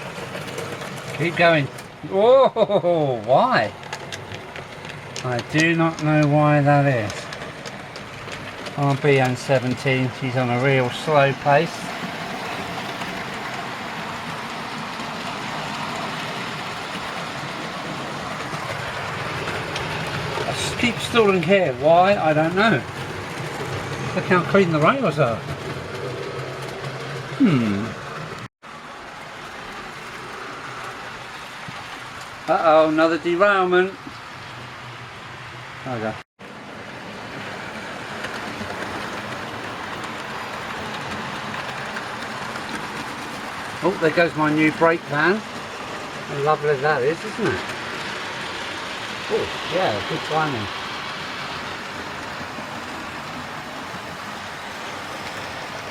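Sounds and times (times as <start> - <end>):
model train wheels rolling on rail: 0.0 - 55.9
ticks over rail joints: 3.2 - 11.1.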